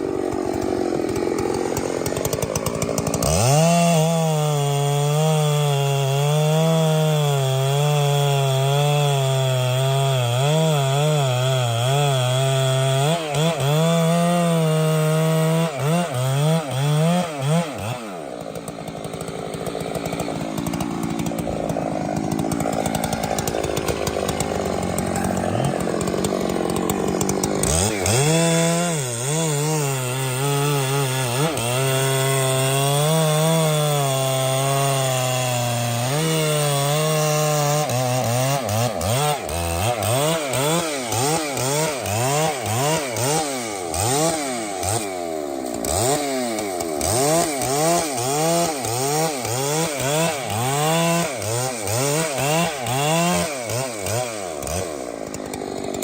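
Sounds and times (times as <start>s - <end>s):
chainsaw running: 0.0s - 56.0s.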